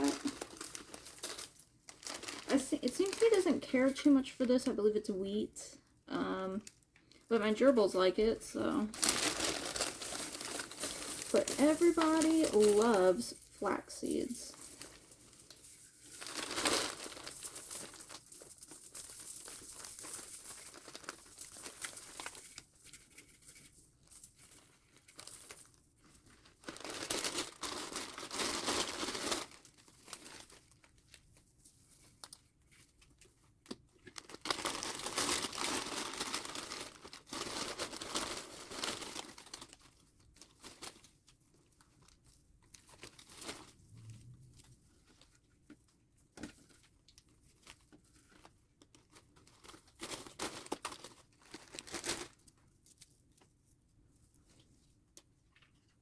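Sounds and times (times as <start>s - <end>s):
paper crinkling and tearing: 0.0s - 4.2s, 8.8s - 33.2s, 34.0s - 41.4s, 47.2s - 52.5s.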